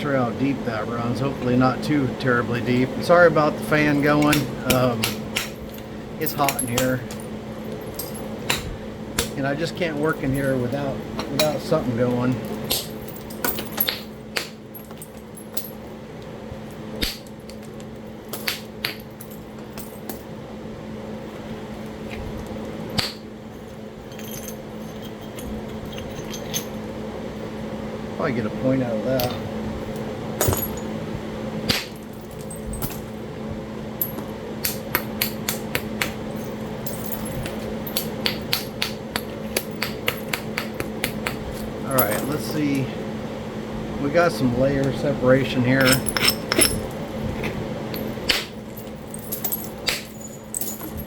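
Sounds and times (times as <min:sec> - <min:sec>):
electric fan hum: 0:00.0 - 0:51.0
knapping tool striking stone: 0:23.0 - 0:23.2, 0:38.0 - 0:41.4.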